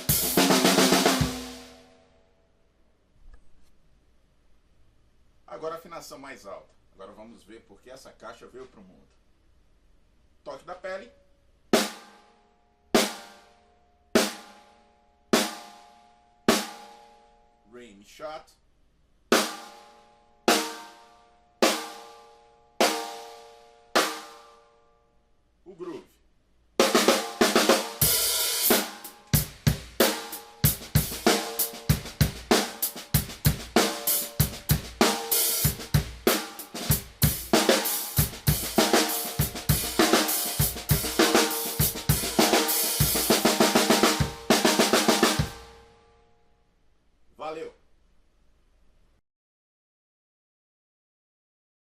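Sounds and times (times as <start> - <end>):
snare drum rim shots: 0.0 - 1.7
drum kit groove: 0.0 - 1.9, 13.0 - 13.5, 14.2 - 14.7, 19.3 - 21.0, 21.6 - 22.2, 26.8 - 45.9.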